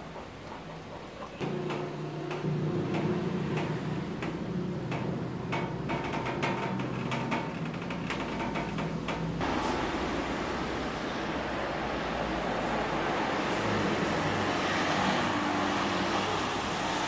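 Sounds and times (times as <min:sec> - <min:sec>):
low engine hum: 0:00.0 - 0:07.1.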